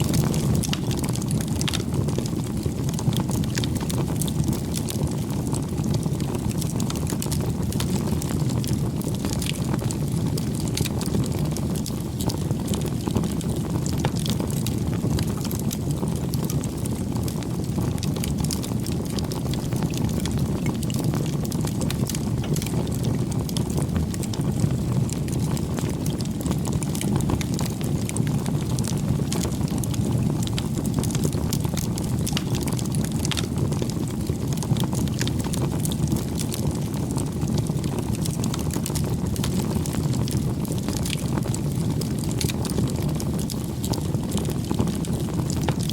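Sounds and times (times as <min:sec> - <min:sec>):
burning wood crackling and popping: 0:00.0 - 0:45.9
rush of flames: 0:00.0 - 0:45.9.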